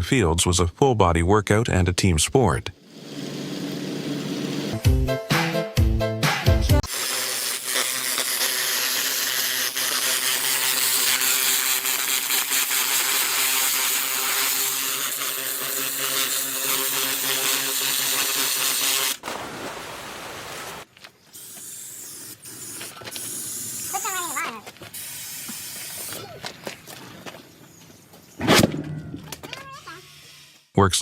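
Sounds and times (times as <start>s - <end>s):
power tool grinding: 2.8s - 4.8s, 6.8s - 19.2s.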